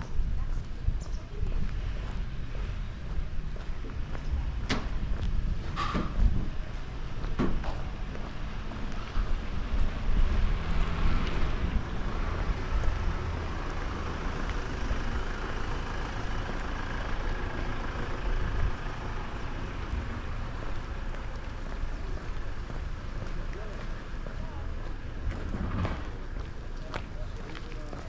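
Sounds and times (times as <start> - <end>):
wind buffeting microphone: 0.0 - 13.2
motor vehicle passing: 8.3 - 23.8.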